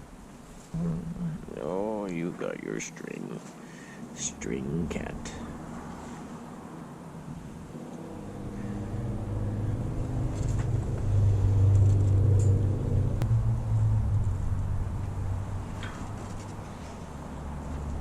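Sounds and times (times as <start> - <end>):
car engine running: 7.2 - 16.9.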